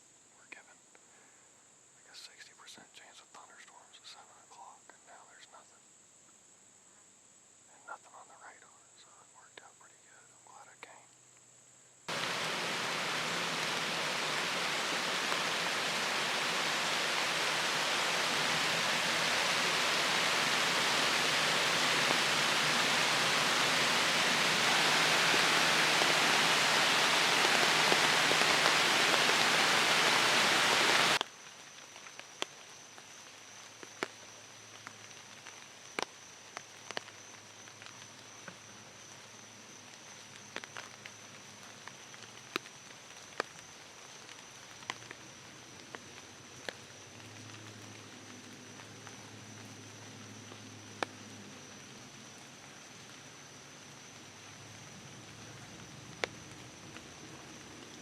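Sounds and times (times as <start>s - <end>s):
heavy rain pouring: 12.1s - 31.2s
thin steady high tone: 12.1s - 31.2s.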